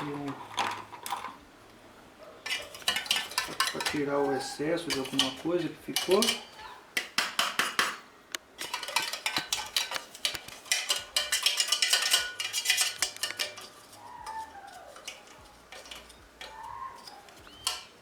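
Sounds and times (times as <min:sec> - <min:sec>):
hand tool scraping metal: 0:02.4 - 0:06.6, 0:08.6 - 0:18.0.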